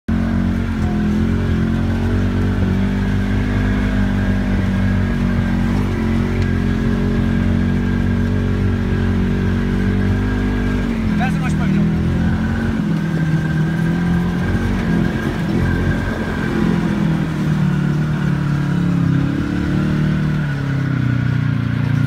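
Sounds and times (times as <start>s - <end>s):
atv engine running: 0.1s - 22.0s.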